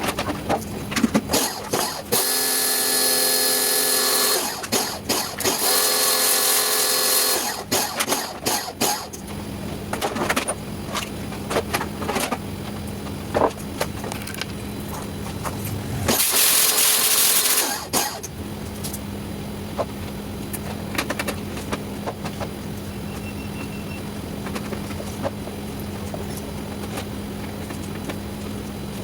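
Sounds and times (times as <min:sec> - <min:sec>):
steady low hum: 0:02.9 - 0:29.0
loud hiss: 0:15.8 - 0:18.2.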